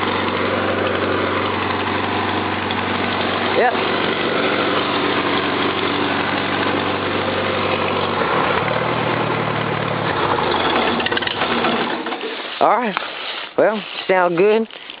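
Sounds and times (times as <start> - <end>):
tractor engine idling: 0.0 - 14.9.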